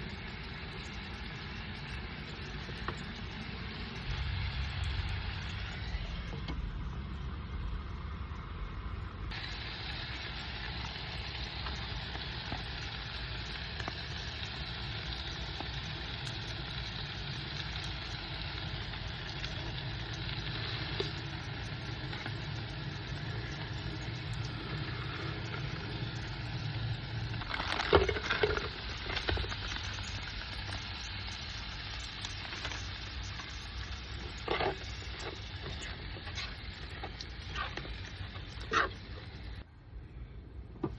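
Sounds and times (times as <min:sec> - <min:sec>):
food sizzling in a pan: 0:00.0 - 0:39.6
low rumble: 0:01.6 - 0:09.4.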